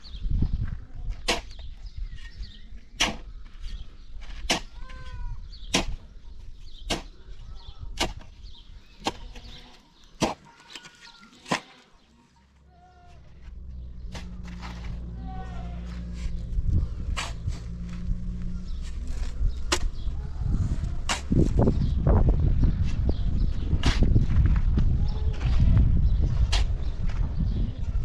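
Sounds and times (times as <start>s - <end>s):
small birds chirping: 0.0s - 28.0s
sharp tool strikes: 5.7s - 6.0s.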